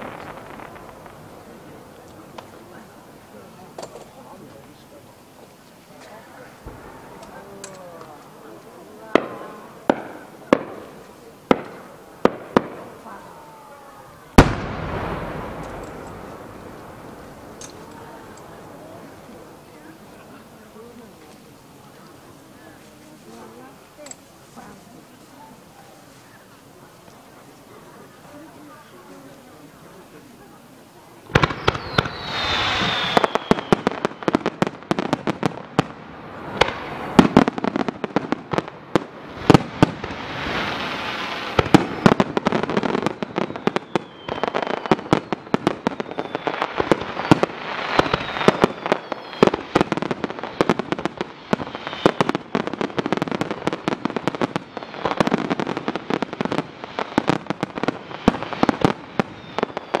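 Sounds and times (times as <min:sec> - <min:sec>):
fireworks bangs: 0:00.0 - 1:00.0
fireworks crackling: 0:00.0 - 1:00.0
falling whistle: 0:31.6 - 0:33.9, 0:48.0 - 0:49.6.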